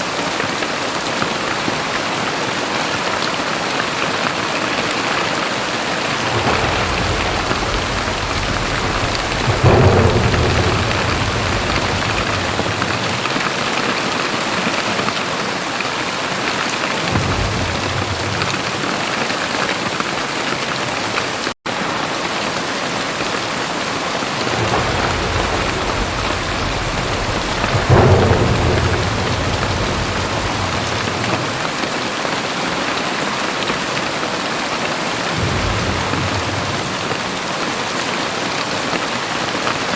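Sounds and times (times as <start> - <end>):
very heavy rain pouring: 0.0 - 39.9
low rumbles: 5.8 - 14.1, 24.2 - 31.9, 35.3 - 37.6.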